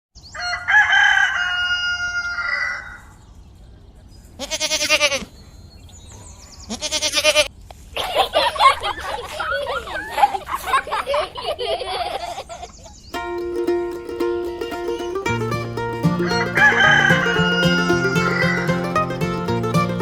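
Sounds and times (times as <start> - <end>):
rooster crowing: 0.4 - 3.0, 16.2 - 18.7
goat bleating: 4.4 - 5.3, 6.7 - 7.5
wavering babble: 13.2 - 20.0.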